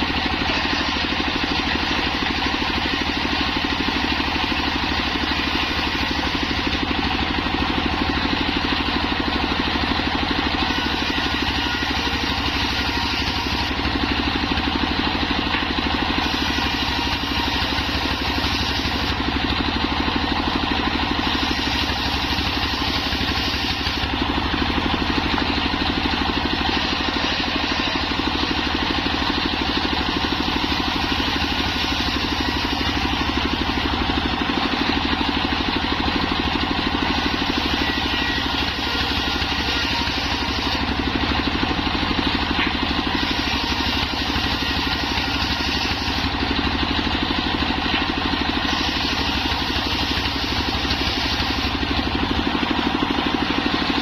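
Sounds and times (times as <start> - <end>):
circular saw humming: 8.9 - 14.2.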